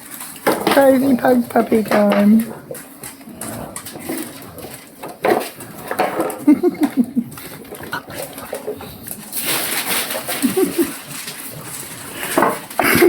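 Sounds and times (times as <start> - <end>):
puppies growling and grunting: 0.6 - 13.0
breathy noise: 6.7 - 13.0.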